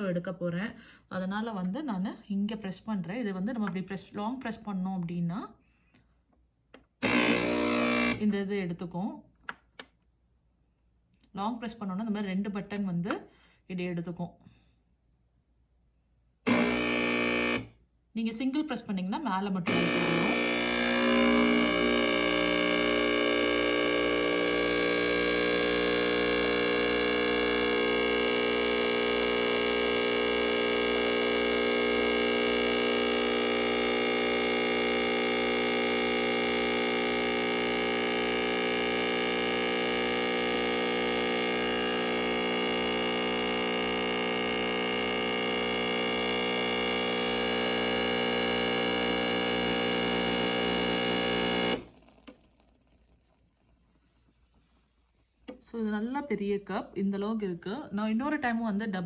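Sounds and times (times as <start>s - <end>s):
espresso machine pump humming: 7.0s - 8.2s, 16.5s - 17.7s, 19.7s - 55.2s.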